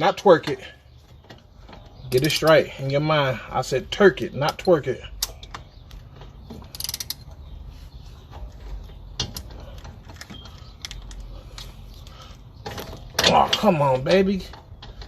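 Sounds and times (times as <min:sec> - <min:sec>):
metal rattling: 0:00.0 - 0:15.0
hand wrench clicking on bolts: 0:06.6 - 0:07.3.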